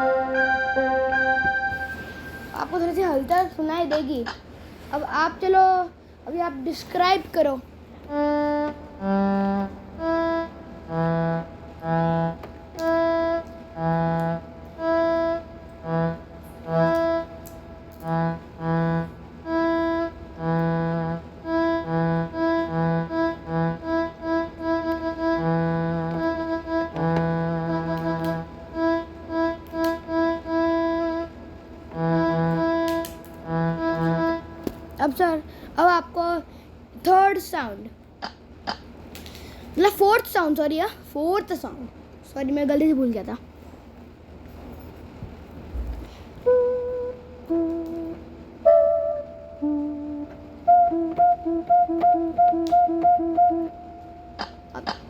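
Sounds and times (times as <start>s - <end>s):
violin-like melody: 0.0s - 2.7s, 8.1s - 35.0s.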